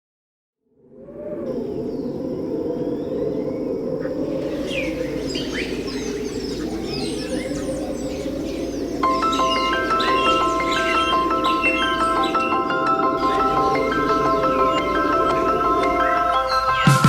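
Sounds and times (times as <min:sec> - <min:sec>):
birds chirping: 0:01.8 - 0:17.0
thin high whine: 0:04.2 - 0:17.0
waterfall rushing: 0:04.2 - 0:17.0.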